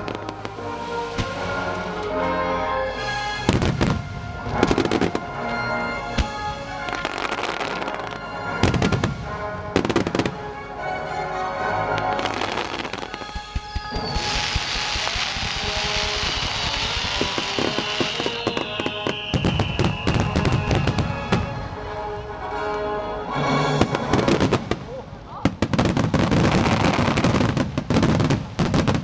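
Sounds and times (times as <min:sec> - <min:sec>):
music: 0:00.0 - 0:28.9
firework pops and crackle: 0:01.2 - 0:01.4, 0:12.8 - 0:21.6, 0:25.5 - 0:29.0
firework shells booming: 0:12.8 - 0:21.6.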